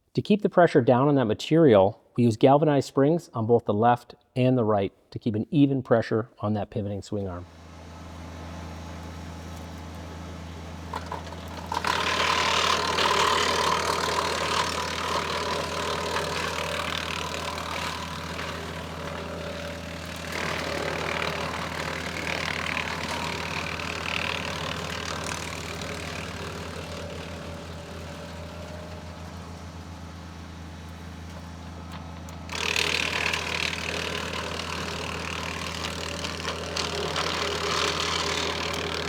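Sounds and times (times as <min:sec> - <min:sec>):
engine running steadily: 0:07.4 - 0:39.0
loud mechanical noise: 0:07.4 - 0:39.0.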